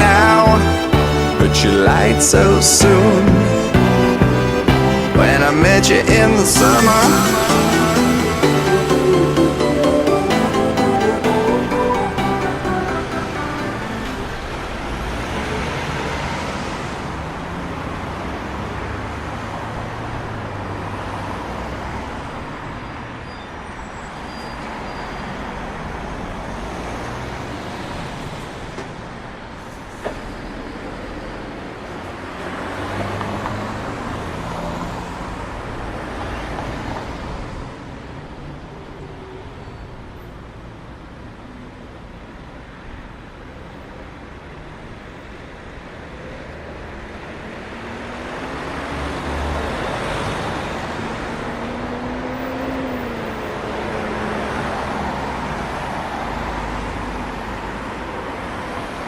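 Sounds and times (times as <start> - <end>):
motor vehicles passing: 0.0 - 22.6, 31.6 - 37.5.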